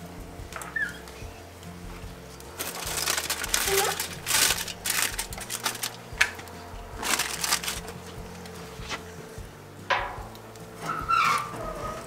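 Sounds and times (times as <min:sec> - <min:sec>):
aluminium foil crinkling: 0:02.2 - 0:09.1.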